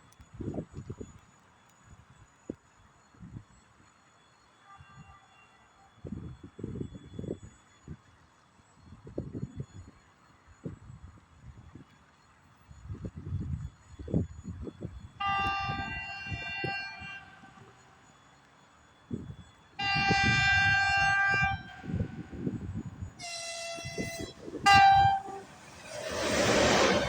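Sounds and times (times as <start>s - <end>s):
electric locomotive horn: 4.6s - 5.6s, 15.2s - 18.0s, 19.8s - 27.0s
rush of approaching train: 14.0s - 18.1s, 19.8s - 27.0s.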